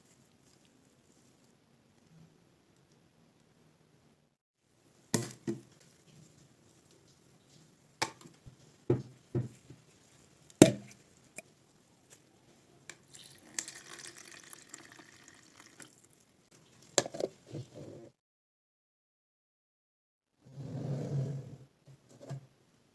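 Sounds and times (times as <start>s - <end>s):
liquid pouring: 13.1s - 16.3s.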